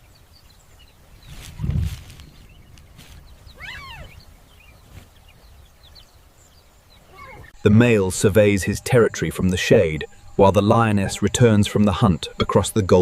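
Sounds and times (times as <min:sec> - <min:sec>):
faint bird chirps: 0:00.0 - 0:08.0
lion cub mewing call: 0:03.6 - 0:04.2.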